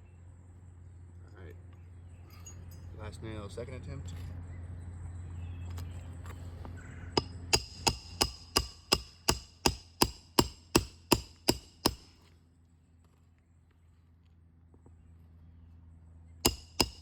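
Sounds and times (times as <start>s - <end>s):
hammer striking nail: 7.2s - 12.2s, 16.4s - 17.0s.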